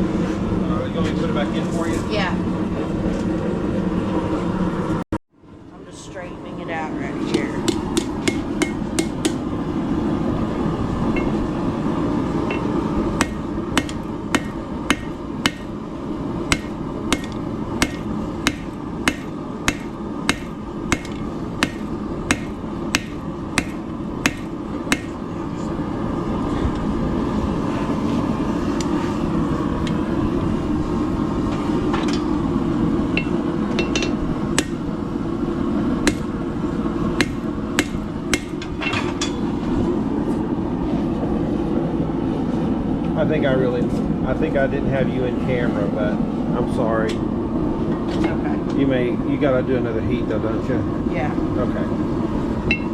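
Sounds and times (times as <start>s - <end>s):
hammer striking steel on anvil: 7.3s - 9.4s, 11.1s - 11.4s, 12.5s - 15.8s, 16.5s - 25.2s, 33.2s - 34.8s, 36.0s - 36.3s, 37.2s - 39.5s
low rushing noise: 7.6s - 52.9s.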